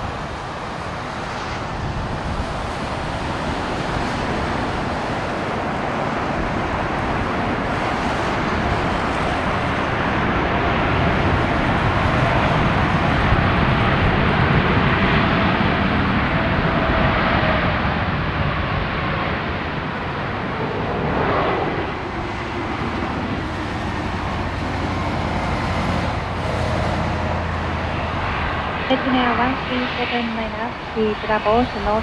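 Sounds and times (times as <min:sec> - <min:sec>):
jet engines rushing: 0:00.0 - 0:32.0.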